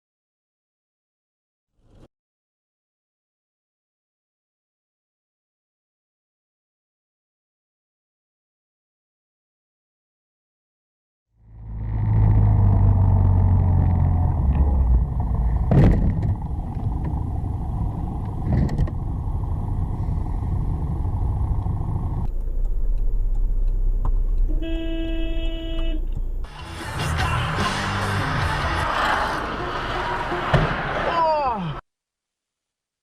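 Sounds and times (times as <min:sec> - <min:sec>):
vehicle rumble: 0:11.4 - 0:31.2
short pitched tone: 0:24.4 - 0:26.2.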